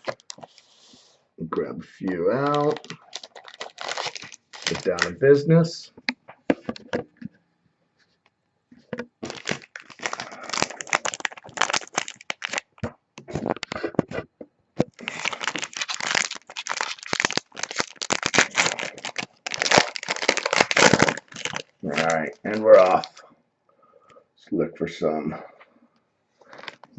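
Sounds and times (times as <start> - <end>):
card wrappers crinkling and tearing: 0.0 - 0.7, 2.0 - 5.2, 9.2 - 14.0, 14.8 - 23.2, 26.4 - 26.9.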